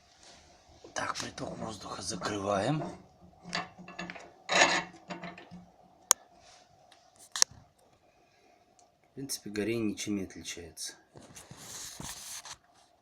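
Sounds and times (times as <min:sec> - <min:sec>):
metal damper scraping: 0:00.9 - 0:06.2.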